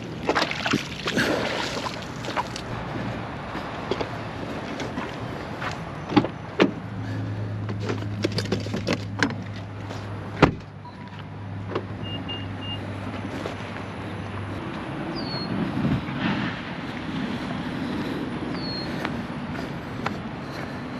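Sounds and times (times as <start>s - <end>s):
sharp knocks and clunks: 6.1s - 6.8s, 7.6s - 9.6s, 10.4s - 10.7s.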